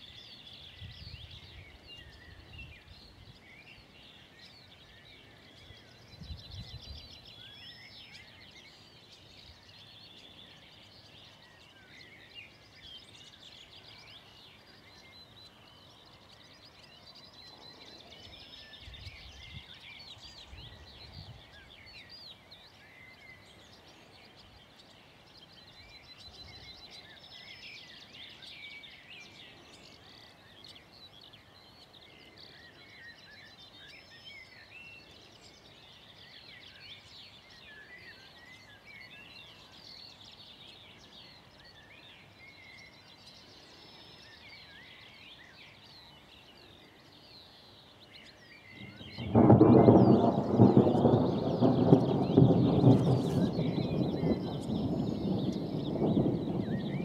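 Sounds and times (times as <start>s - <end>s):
songbirds singing: 0.0s - 57.0s
distant thunder rumble: 48.8s - 57.0s.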